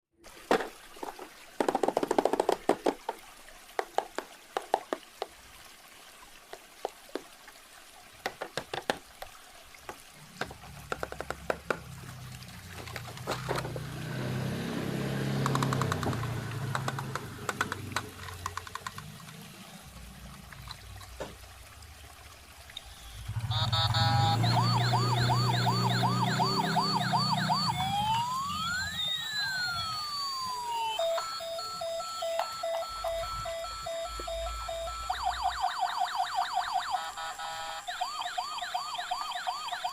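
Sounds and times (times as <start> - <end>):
steady water sound: 0.1 - 39.9
plastic toy clicks: 15.4 - 19.4
toy electronic siren wailing: 23.2 - 39.9.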